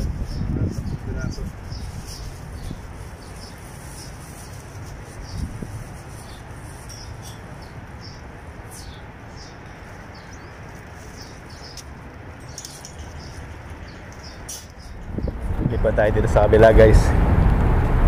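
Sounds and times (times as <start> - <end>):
small birds chirping: 0.0 - 15.5
low background rumble: 14.8 - 18.0.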